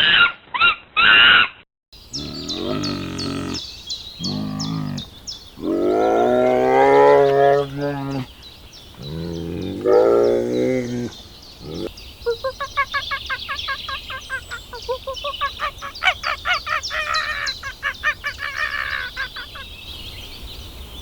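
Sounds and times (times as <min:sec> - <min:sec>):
cattle mooing: 0:02.2 - 0:03.6.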